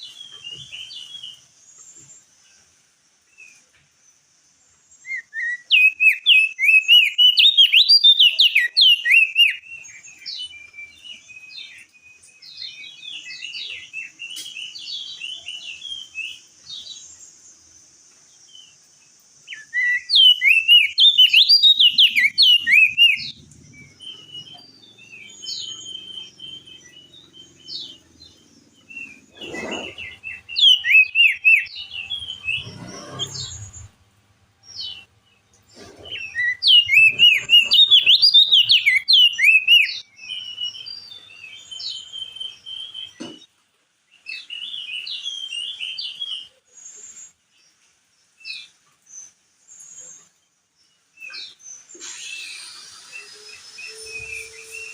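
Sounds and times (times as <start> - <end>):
bird chattering song: 5.0 - 17.4, 18.3 - 34.0, 34.7 - 43.5
bird twittering: 5.1 - 11.5, 19.5 - 34.0, 35.8 - 42.6.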